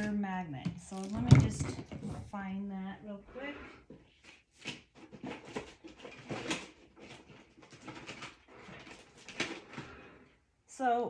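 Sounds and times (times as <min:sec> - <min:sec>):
rummaging through craft supplies: 0:00.0 - 0:02.5, 0:03.8 - 0:10.4.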